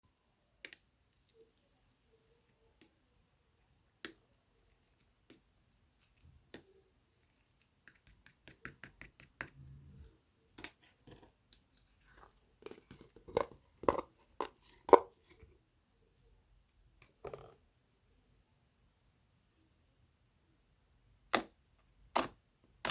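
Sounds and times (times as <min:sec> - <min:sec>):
slime clicking and popping: 0:22.1 - 0:22.9.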